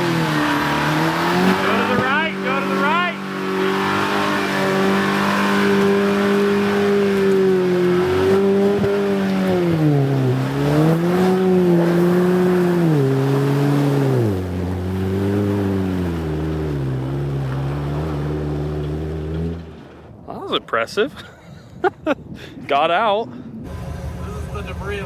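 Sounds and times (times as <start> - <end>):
truck engine under load: 0.0 - 19.9.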